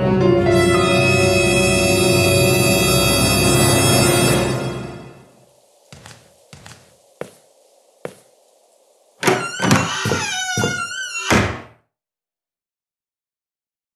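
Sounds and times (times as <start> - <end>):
footsteps on hard floor: 5.9 - 8.3, 9.2 - 11.0
door creaking: 9.2 - 11.8.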